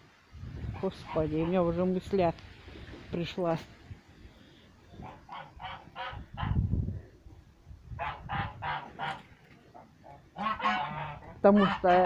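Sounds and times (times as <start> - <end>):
geese honking: 5.0 - 6.6, 8.0 - 12.0.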